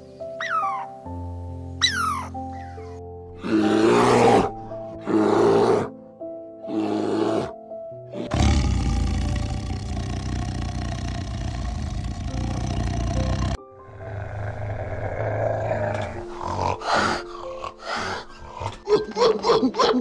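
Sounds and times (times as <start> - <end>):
background music: 0.0 - 20.0
animal roars: 8.2 - 18.8
animal growling: 8.2 - 18.9.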